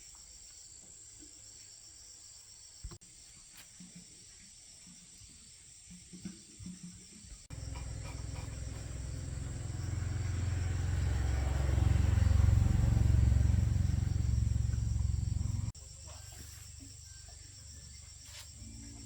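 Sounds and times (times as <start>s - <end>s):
machine pulsing hum: 7.5s - 15.8s.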